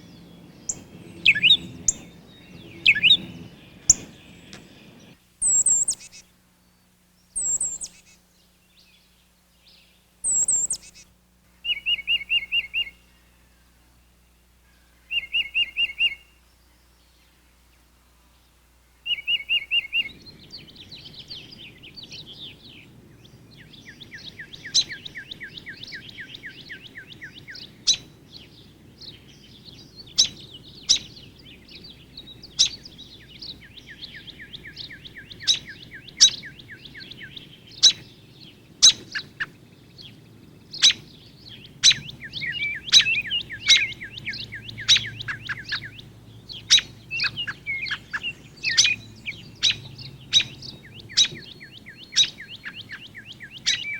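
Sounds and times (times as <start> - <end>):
bird trilling: 0.0 - 4.7, 5.4 - 6.2, 7.4 - 8.2, 10.2 - 11.0, 11.6 - 13.3, 15.0 - 16.4, 23.9 - 28.1, 29.5 - 38.2, 38.8 - 53.9
high bird twittering: 0.0 - 6.2, 7.3 - 13.3, 14.6 - 16.4, 19.0 - 53.9
sharp bird chip notes: 0.7 - 4.6, 5.4 - 6.2, 7.4 - 8.1, 10.3 - 11.0.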